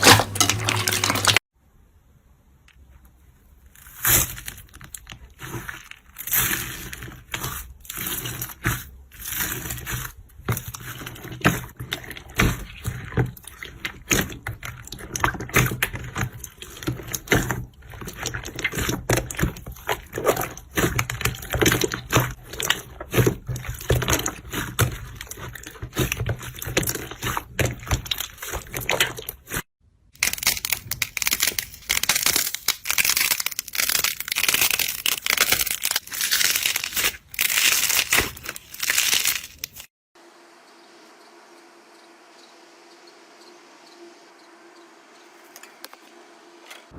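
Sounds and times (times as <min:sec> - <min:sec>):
slime squelching: 0:00.0 - 0:01.4, 0:03.6 - 0:39.9.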